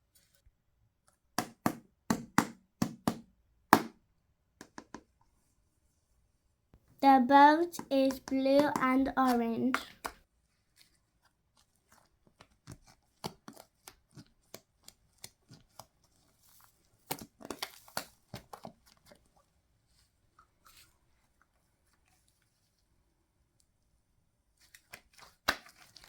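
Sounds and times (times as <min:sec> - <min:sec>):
hands handling craft materials: 0:04.6 - 0:23.0, 0:24.4 - 0:26.0.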